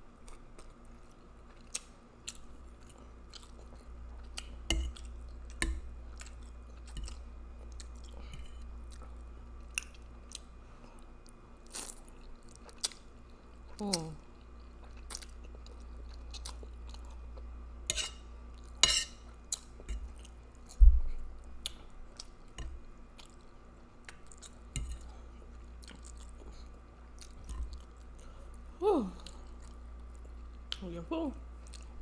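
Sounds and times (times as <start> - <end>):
person humming: 28.8 - 29.3.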